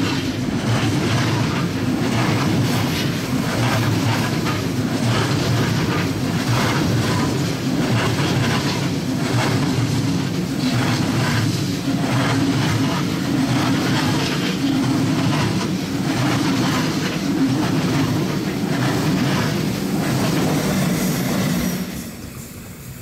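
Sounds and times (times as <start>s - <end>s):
train wheels clacking on rails: 0.0s - 23.0s.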